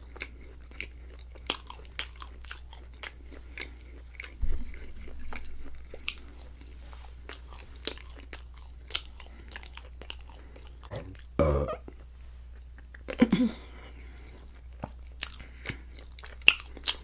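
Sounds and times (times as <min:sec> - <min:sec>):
crunchy bread chewing: 0:00.0 - 0:17.0
dull thump: 0:04.4 - 0:05.9.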